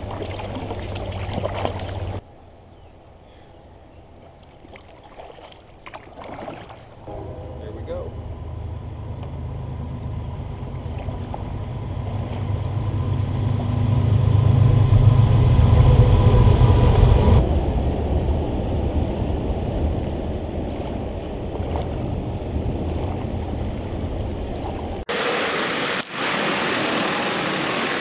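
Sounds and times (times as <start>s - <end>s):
freight train rumbling over bridge: 7.0s - 24.2s
faint high ringing tone: 7.1s - 10.3s.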